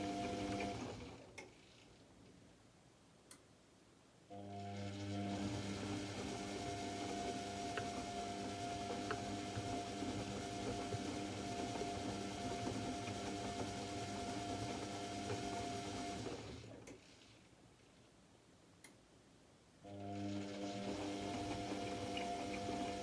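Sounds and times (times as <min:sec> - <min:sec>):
washing machine motor whine: 0:00.0 - 0:01.2, 0:04.3 - 0:16.7, 0:19.9 - 0:23.0.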